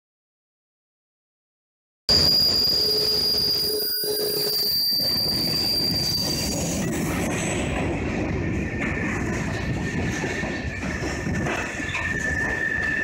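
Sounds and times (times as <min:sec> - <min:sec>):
high wheel squeal: 0:02.1 - 0:07.6, 0:09.7 - 0:13.0
train cars rumbling: 0:02.1 - 0:13.0.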